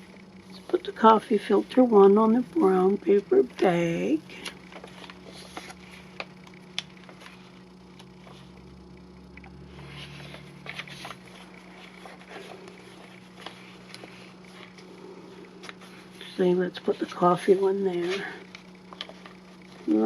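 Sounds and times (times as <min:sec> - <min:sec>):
steady low hum: 0:00.0 - 0:20.0
paper rustling and tapping: 0:04.3 - 0:08.5, 0:10.1 - 0:14.9, 0:18.1 - 0:20.0.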